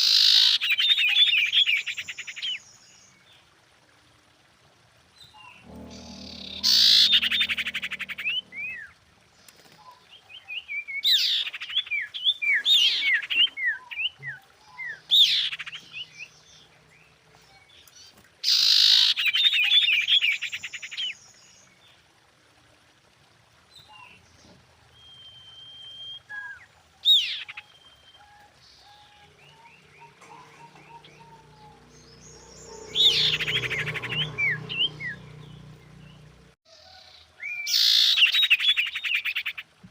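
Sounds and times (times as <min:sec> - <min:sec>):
bird calling with buzzy trills: 0:05.2 - 0:09.2, 0:09.8 - 0:21.7, 0:25.0 - 0:36.6.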